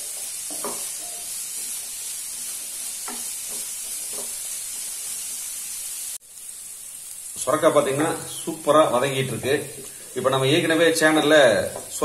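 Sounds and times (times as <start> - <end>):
wooden spatula scraping a pan: 0.0 - 5.4
vegetables sizzling in a pan: 0.0 - 12.0.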